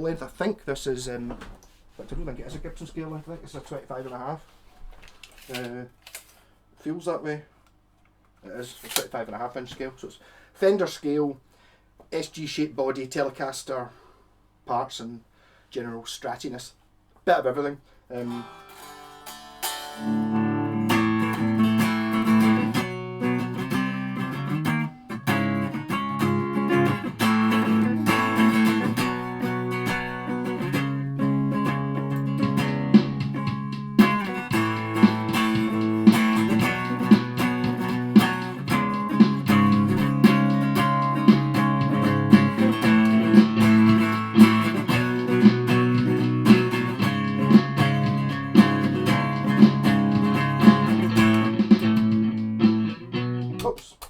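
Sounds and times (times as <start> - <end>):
distorted electric guitar: 18.2 - 53.8.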